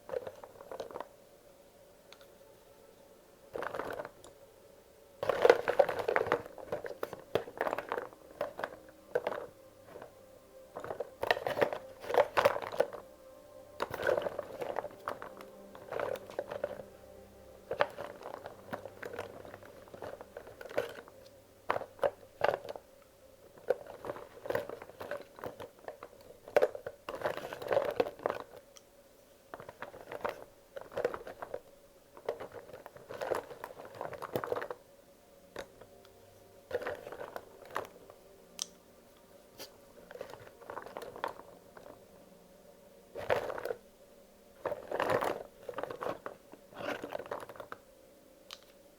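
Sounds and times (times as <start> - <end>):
rustling: 0.0 - 1.2, 3.4 - 4.4, 5.2 - 34.9, 35.5 - 48.9
crayons clicking together: 38.6 - 38.8.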